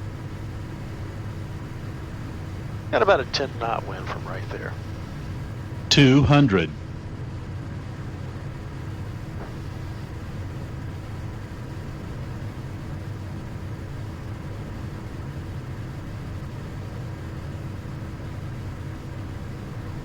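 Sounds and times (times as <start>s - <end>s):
jet airflow and engine rumble: 0.0s - 11.9s
faint steady hum: 0.0s - 20.0s.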